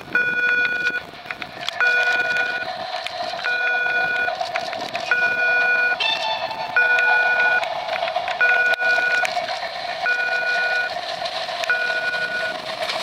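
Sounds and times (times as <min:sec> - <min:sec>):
electronic beeping tone: 0:00.1 - 0:01.0, 0:01.8 - 0:02.7, 0:03.4 - 0:04.4, 0:05.1 - 0:07.7, 0:08.4 - 0:09.3, 0:10.0 - 0:11.0, 0:11.7 - 0:12.6.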